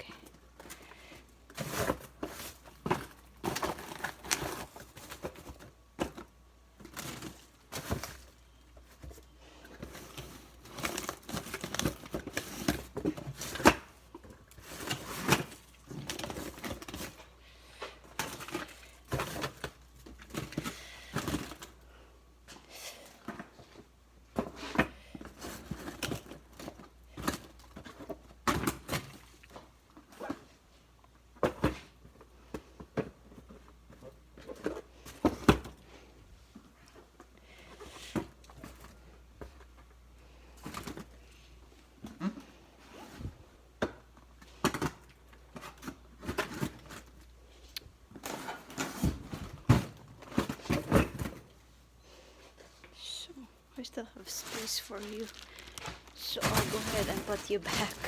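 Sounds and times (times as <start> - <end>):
plastic bags crinkling: 54.0 - 58.0
frozen items knocking: 54.2 - 58.0.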